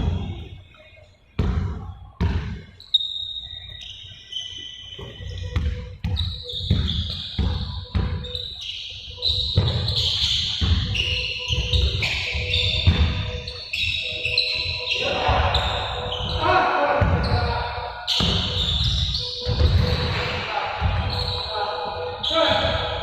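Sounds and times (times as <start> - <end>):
shoe squeaks: 0.0 - 23.0
balls bouncing on a hard floor: 1.4 - 2.7, 4.9 - 8.4, 9.4 - 13.6, 17.0 - 17.5, 18.1 - 21.2.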